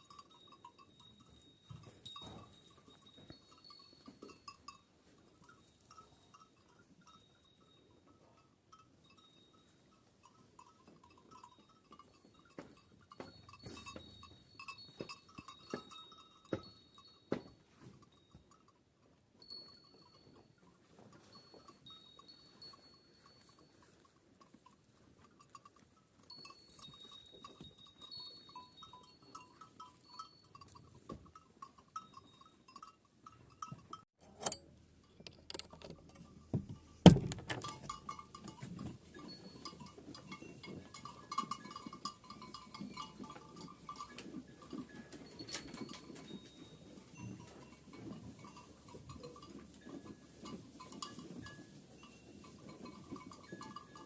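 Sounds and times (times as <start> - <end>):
sheep bells clinking: 0.0 - 54.0.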